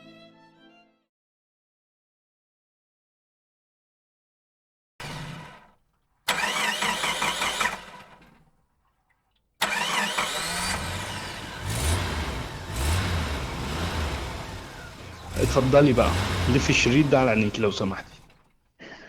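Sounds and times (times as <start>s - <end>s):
car engine revving: 5.0s - 5.7s, 6.3s - 8.4s, 9.6s - 18.5s
car engine cranking: 5.0s - 8.5s, 9.6s - 18.6s.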